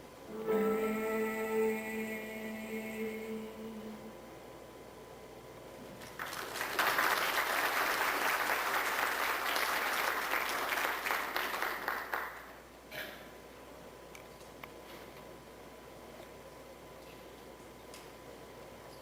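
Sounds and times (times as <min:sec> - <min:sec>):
audience applauding: 0:06.0 - 0:12.5.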